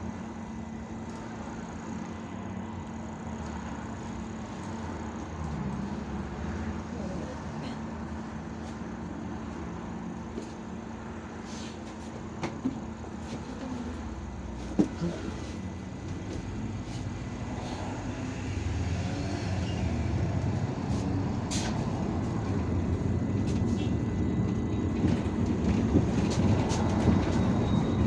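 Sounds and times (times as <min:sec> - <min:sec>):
bus engine and road hum: 0:00.0 - 0:28.0.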